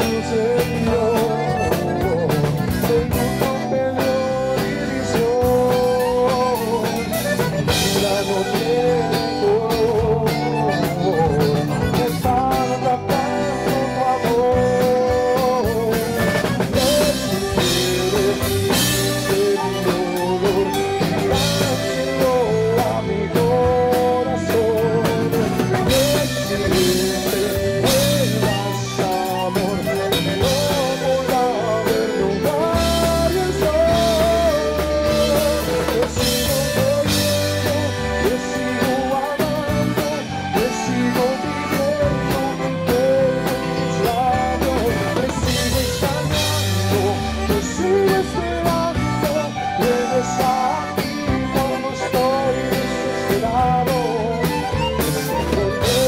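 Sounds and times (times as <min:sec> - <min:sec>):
accordion melody: 0:00.0 - 0:56.0
bass: 0:00.0 - 0:56.0
drum kit: 0:00.0 - 0:56.0.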